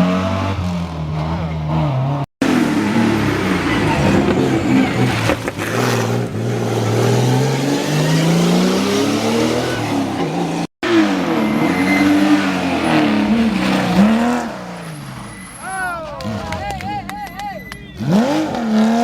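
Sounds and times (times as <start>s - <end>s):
rally car engine revving: 0.0s - 16.7s, 17.8s - 19.0s
rally car engine accelerating: 18.0s - 19.0s.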